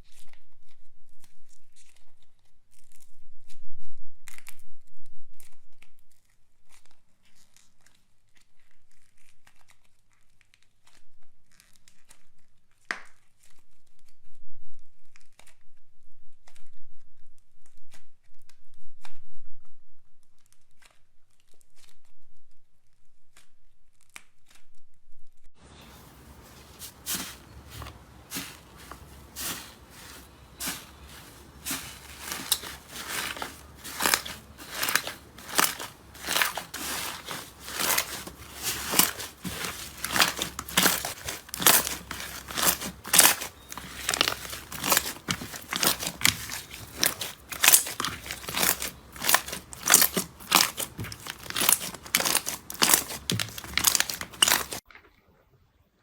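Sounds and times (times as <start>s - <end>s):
slime clicking and crackling: 25.8s - 54.8s.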